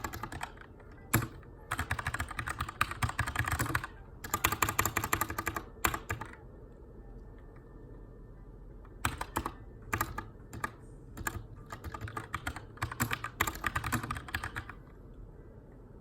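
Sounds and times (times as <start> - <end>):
mechanical keyboard typing: 0.0 - 6.4, 8.9 - 14.9.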